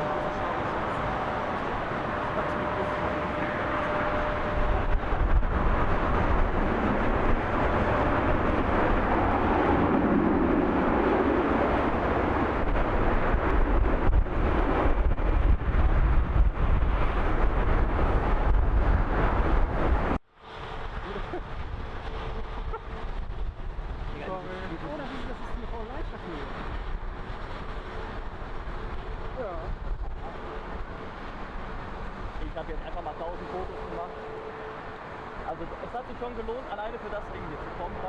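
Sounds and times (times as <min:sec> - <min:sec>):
faint steady hum: 0:00.0 - 0:13.1
jet engine roar: 0:00.0 - 0:38.0
wind buffeting microphone: 0:00.0 - 0:38.0.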